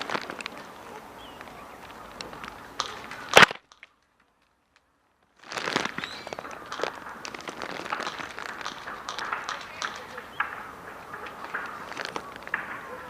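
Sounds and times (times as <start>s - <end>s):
loud crack: 0.0s - 13.0s
outdoor noise: 0.0s - 13.0s
airsoft guns snapping and clicking: 1.4s - 4.8s, 5.5s - 13.0s.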